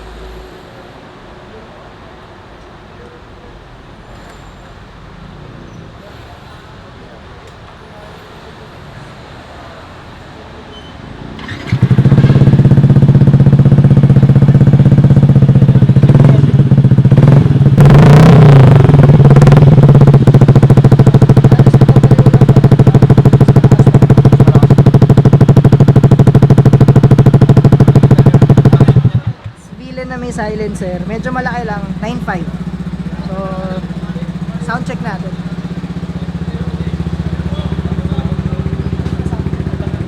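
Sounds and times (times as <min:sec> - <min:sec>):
scooter engine idling: 0:11.4 - 0:40.0
throttle blip: 0:18.0 - 0:29.5.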